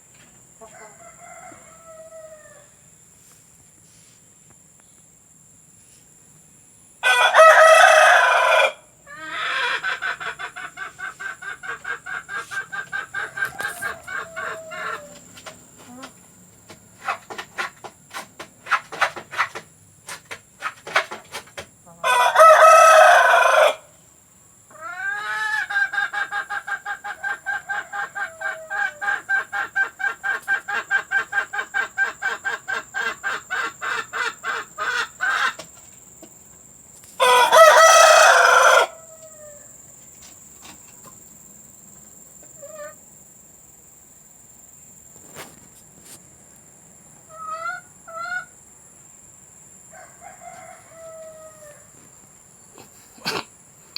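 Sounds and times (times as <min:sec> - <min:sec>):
rooster crowing: 0:00.6 - 0:02.8, 0:07.0 - 0:10.6, 0:13.0 - 0:15.3, 0:21.9 - 0:23.9, 0:37.2 - 0:39.8, 0:49.9 - 0:52.0
hen cackling: 0:07.0 - 0:16.2, 0:21.9 - 0:23.9, 0:24.7 - 0:35.7, 0:37.2 - 0:39.7, 0:42.5 - 0:43.0, 0:47.3 - 0:48.6
hen clucking: 0:09.1 - 0:23.8, 0:24.7 - 0:36.3, 0:42.4 - 0:43.0, 0:47.3 - 0:48.5.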